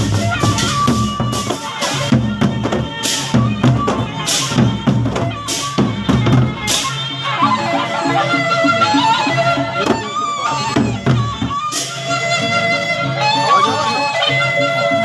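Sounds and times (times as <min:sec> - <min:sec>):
large barrel drums beating: 0:00.0 - 0:11.6
held melody line: 0:00.0 - 0:15.0.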